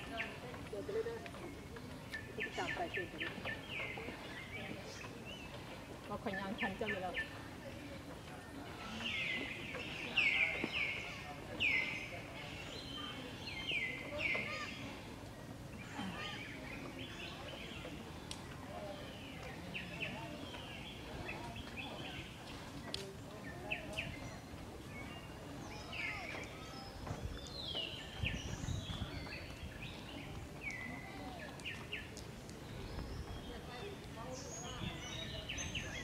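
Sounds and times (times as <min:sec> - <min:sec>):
birds chirping and calling: 0:00.0 - 0:07.5, 0:08.5 - 0:15.1
outdoor background noise: 0:00.0 - 0:36.0.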